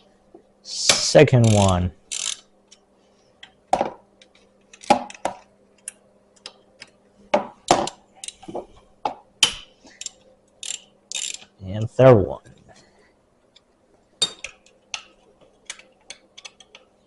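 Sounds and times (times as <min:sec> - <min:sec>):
faint steady hum: 0:00.0 - 0:17.0
allen key clicking and scraping: 0:10.0 - 0:11.5.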